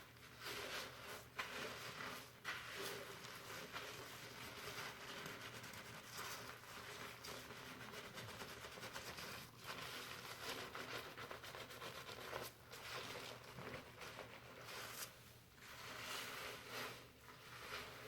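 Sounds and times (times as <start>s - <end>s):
shampoo lather rustling in hair: 0.0s - 18.0s.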